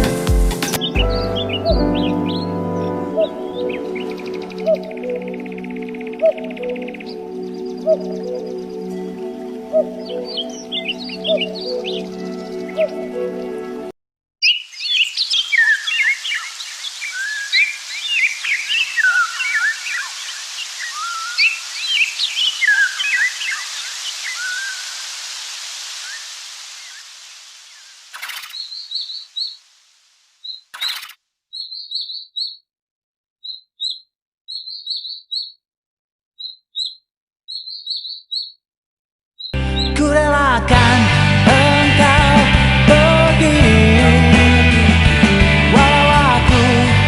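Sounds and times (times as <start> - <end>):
birds chirping and whistling: 0.6 - 13.8, 14.4 - 25.2, 27.7 - 29.7, 30.4 - 32.6, 33.4 - 35.6, 36.4 - 38.6, 39.4 - 40.1
bird high chirps: 0.7 - 13.1, 14.4 - 25.0, 27.7 - 29.7, 30.4 - 32.7, 33.4 - 35.6, 36.4 - 38.6, 39.4 - 40.1
steady hiss: 15.4 - 30.5.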